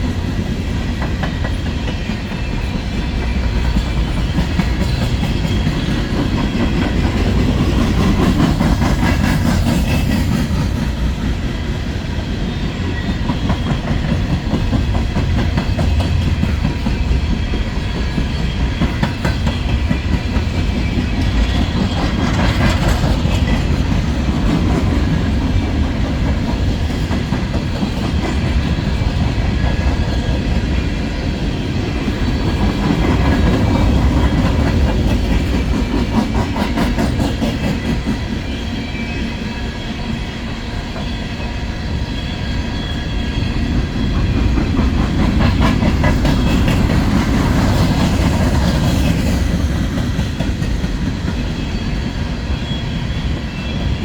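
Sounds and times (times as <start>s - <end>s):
freight train rolling past: 0.0s - 54.0s
wheels clicking over rail joints: 12.9s - 38.5s, 43.5s - 52.3s.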